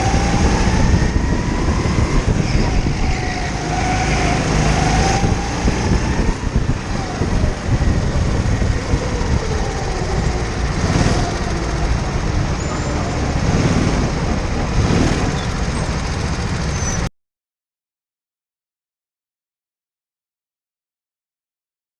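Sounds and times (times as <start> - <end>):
go-kart engine rumbling: 0.0 - 17.1.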